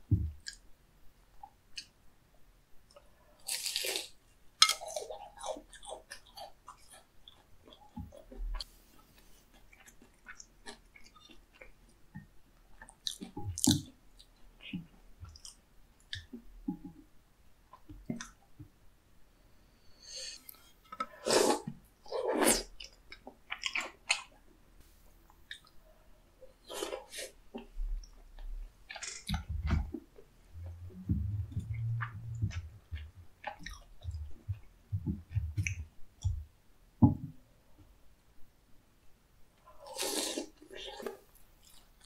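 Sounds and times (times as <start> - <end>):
chewing and wet mouth sounds: 2.9 - 16.9, 20.4 - 24.4, 25.3 - 25.9, 26.5 - 36.4.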